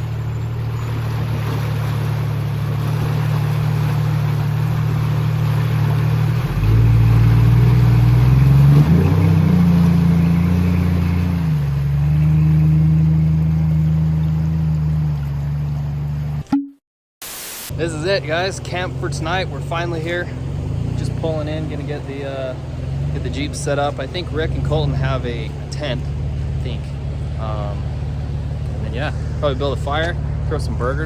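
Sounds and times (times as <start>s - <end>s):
off-road vehicle engine running: 0.0s - 16.4s, 17.7s - 31.0s.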